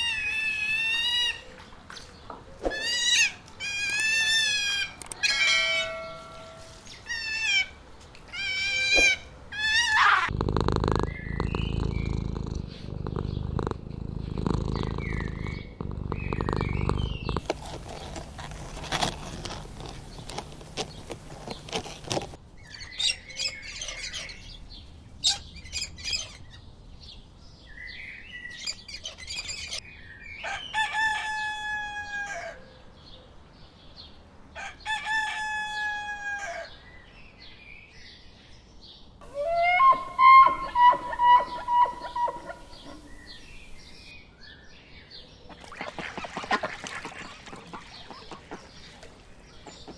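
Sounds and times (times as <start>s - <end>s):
low rumbling: 10.3s - 22.1s
bird chatter: 10.3s - 27.2s, 27.8s - 29.8s, 39.2s - 44.1s
chirps: 10.9s - 13.7s, 14.3s - 17.4s, 39.2s - 44.1s
rooster crowing: 39.2s - 43.3s.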